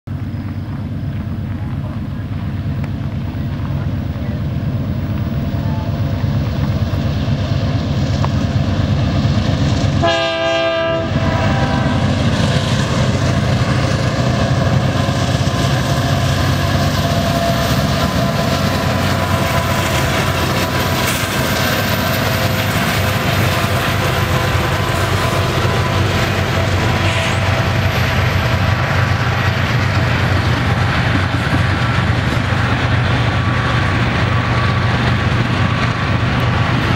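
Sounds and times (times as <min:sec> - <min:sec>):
locomotive engine drone: 0:00.1 - 0:36.9
steel wheels rumbling on rails: 0:00.1 - 0:36.9
train horn blast: 0:10.0 - 0:12.2, 0:23.1 - 0:27.9.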